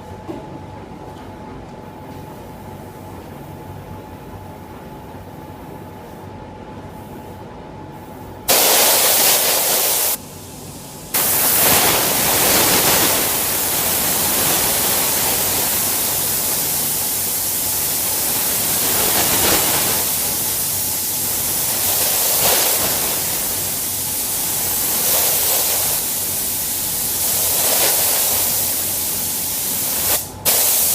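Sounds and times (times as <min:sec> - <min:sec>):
paint spray gun hissing: 0:08.5 - 0:30.9.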